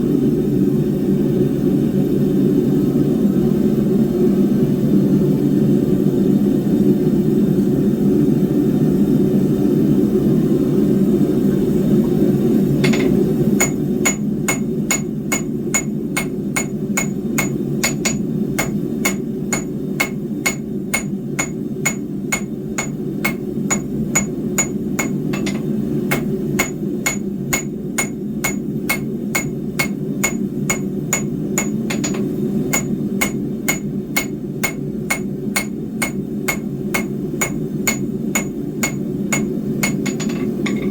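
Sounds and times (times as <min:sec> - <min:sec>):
hammer striking steel on anvil: 0:12.8 - 0:40.9.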